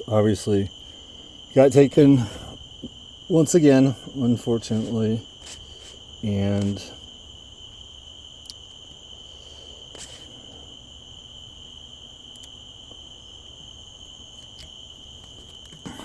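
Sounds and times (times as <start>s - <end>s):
crickets chirring: 0.0s - 16.0s
faint clicks: 8.4s - 8.6s, 12.3s - 13.0s.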